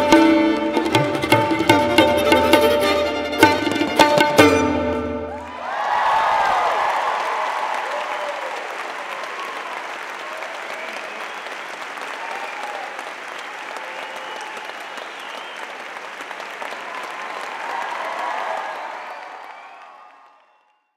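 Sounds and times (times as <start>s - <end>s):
people cheering: 5.1s - 20.9s
audience applauding: 5.3s - 20.9s.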